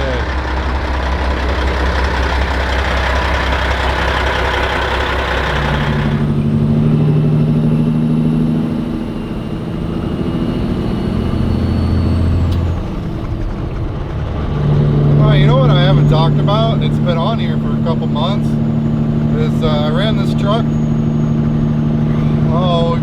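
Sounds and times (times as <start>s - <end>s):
diesel truck engine: 0.0s - 23.0s.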